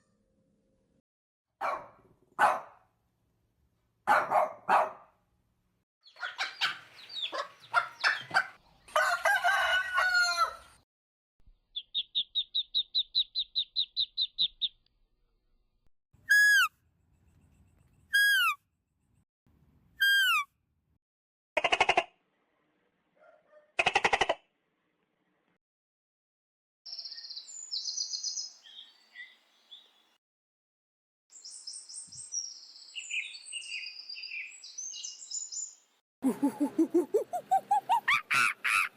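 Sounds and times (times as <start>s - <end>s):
rooster crowing: 8.9s - 10.8s
fast bird trill: 11.8s - 14.8s, 16.3s - 16.7s, 18.1s - 18.6s, 20.0s - 20.4s
short high falling bird calls: 31.4s - 35.8s.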